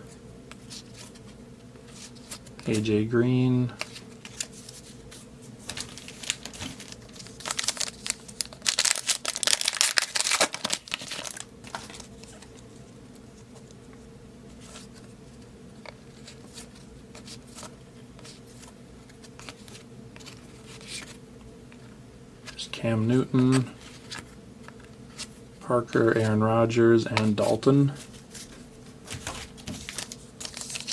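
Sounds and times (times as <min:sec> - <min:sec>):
low steady hum: 0:00.0 - 0:30.9
cards being handled: 0:00.5 - 0:03.0, 0:03.6 - 0:26.4, 0:27.1 - 0:30.9
foil wrapper crinkling and tearing: 0:05.7 - 0:12.4, 0:29.2 - 0:30.9.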